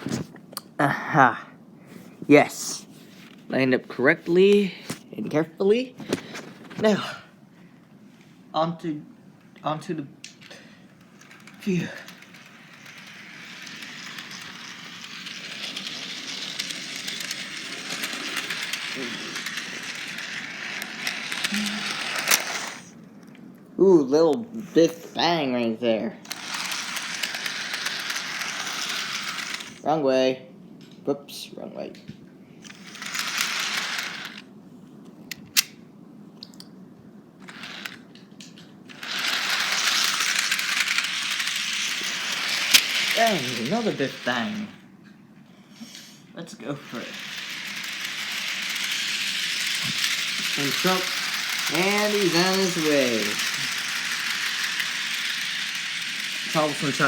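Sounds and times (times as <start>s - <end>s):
model train rolling on track: 10.2s - 23.0s, 26.2s - 29.9s, 32.6s - 34.5s, 37.4s - 44.8s, 46.5s - 57.0s.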